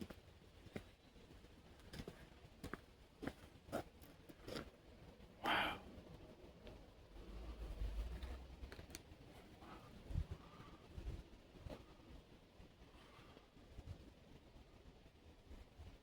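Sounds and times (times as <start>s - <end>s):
footsteps crunching on trail: 1.8s - 4.7s
breathy exhale: 5.4s - 5.9s.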